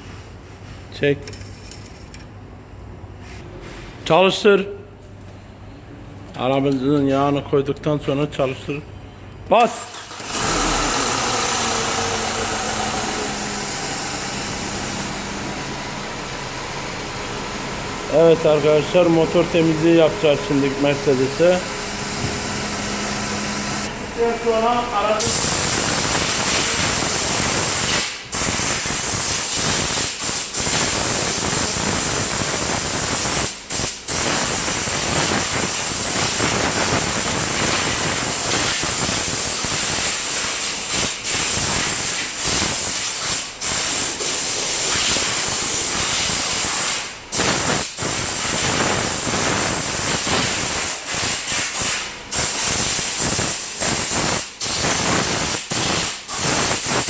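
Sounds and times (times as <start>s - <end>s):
high-pressure water spray hissing: 25.2s - 57.0s.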